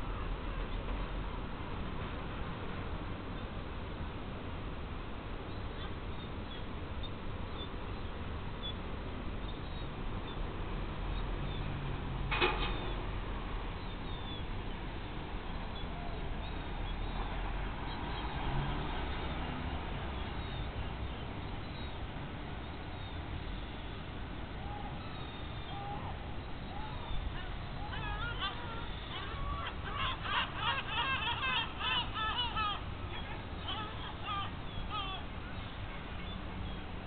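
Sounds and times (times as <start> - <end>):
low background rumble: 19.8 - 37.0.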